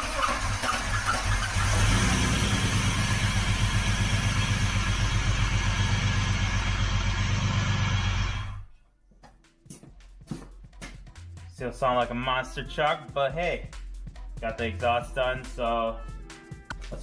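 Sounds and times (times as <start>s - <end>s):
car engine idling: 0.0s - 8.7s.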